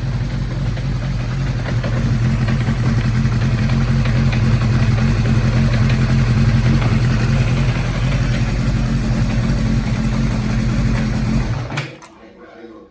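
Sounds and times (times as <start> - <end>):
light engine knocking: 0.0 - 12.0
motorcycle engine idling: 0.0 - 12.0
engine shutting off with click: 0.0 - 12.2.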